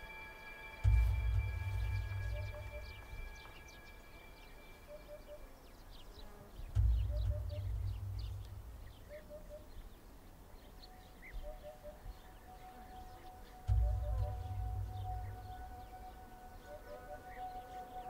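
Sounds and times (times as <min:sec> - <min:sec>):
soft low three-note bird call: 0:00.0 - 0:09.9, 0:10.6 - 0:18.0
small birds chirping: 0:00.0 - 0:18.0
low rumble: 0:00.8 - 0:04.2, 0:06.8 - 0:09.2, 0:13.7 - 0:16.3.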